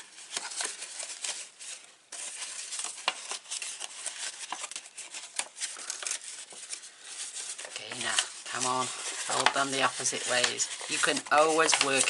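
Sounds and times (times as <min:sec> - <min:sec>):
paper rustling and crinkling: 0:00.0 - 0:12.0.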